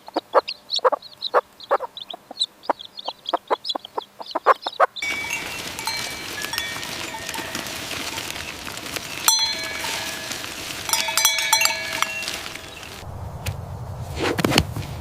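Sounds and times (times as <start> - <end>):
metal livestock bells clanking: 5.0 - 13.0.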